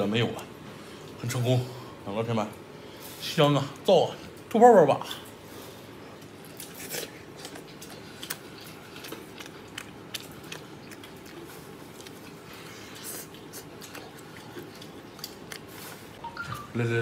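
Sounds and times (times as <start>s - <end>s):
person chewing meat: 5.2s - 16.2s.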